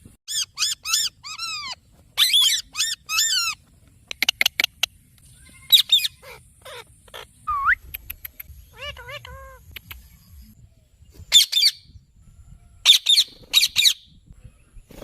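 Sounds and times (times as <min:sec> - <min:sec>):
parrot squawking: 0:00.3 - 0:03.6, 0:05.6 - 0:07.8, 0:08.6 - 0:09.8
parrot rising whistle: 0:07.5 - 0:07.9
parrot clicking: 0:07.9 - 0:08.5.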